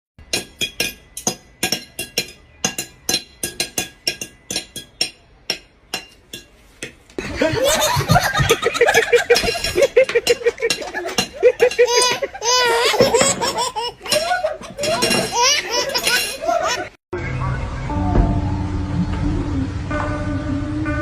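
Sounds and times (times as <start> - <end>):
high-pitched laughter: 7.2 - 17.0.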